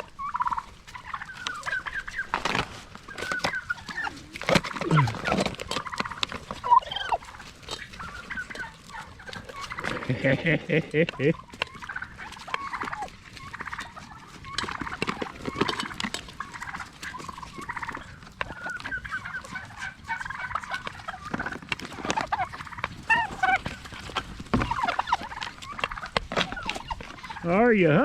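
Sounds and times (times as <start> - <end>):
turkeys warbling: 0.0 - 28.0.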